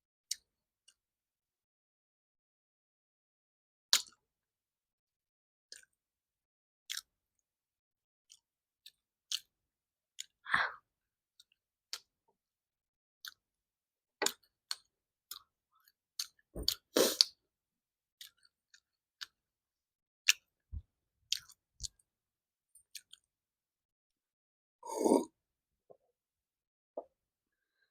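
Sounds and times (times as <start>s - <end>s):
person chewing food: 18.2s - 19.4s, 20.2s - 20.6s, 21.3s - 22.0s, 22.8s - 23.3s
wet mouth clicks and smacks: 20.3s - 20.5s.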